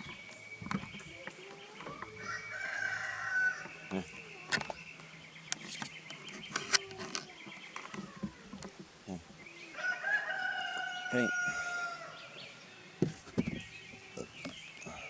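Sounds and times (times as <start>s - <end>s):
rooster crowing: 2.1s - 3.8s, 9.7s - 12.6s.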